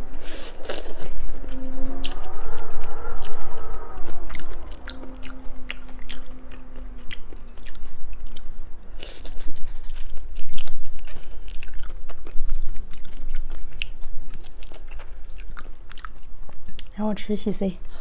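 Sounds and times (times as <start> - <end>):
chewing crunchy seafood: 4.3 - 17.0.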